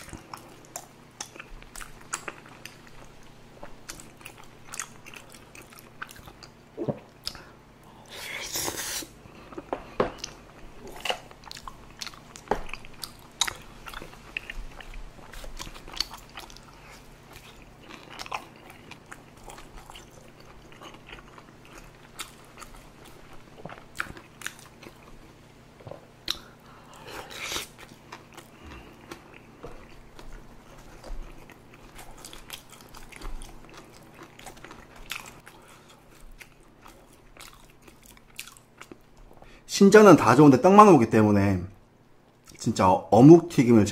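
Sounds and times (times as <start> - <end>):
chewing and biting: 9.5 - 25.1, 26.2 - 39.4.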